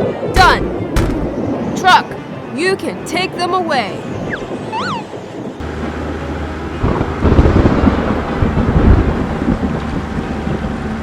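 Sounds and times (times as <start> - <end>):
thunder rumble: 0.4 - 2.0, 6.7 - 10.2.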